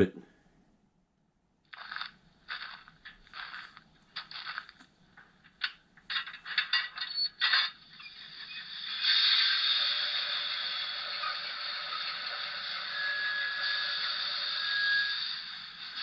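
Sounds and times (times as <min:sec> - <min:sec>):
crackling clinking bursts: 0:01.7 - 0:16.0.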